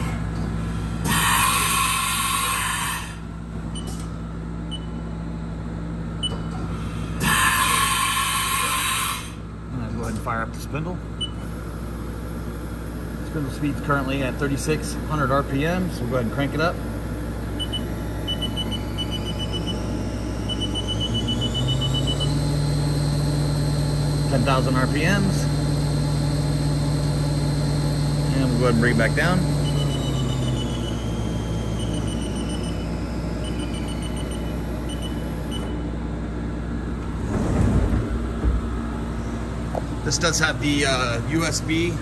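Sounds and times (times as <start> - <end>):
mill spindle whine rising: 0.0 - 42.0
steady machine hum: 0.0 - 42.0
loud air hiss: 1.0 - 3.2, 7.1 - 9.4
short electronic beeps: 17.6 - 22.5, 29.5 - 35.8.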